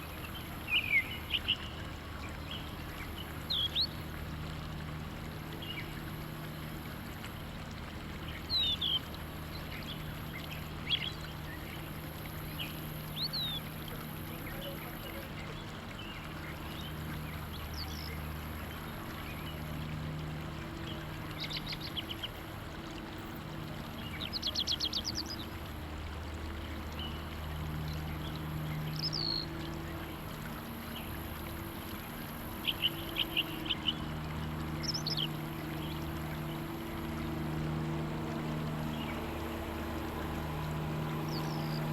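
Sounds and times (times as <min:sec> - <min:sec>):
low mechanical hum: 0:00.0 - 0:41.9
birds chirping and trilling: 0:34.8 - 0:37.4, 0:38.8 - 0:41.9.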